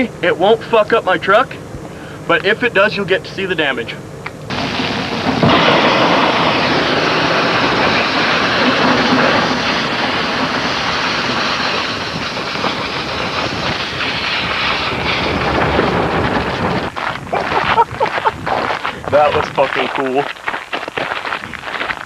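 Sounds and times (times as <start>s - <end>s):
metal scraping and rattling on ground: 4.5s - 22.0s.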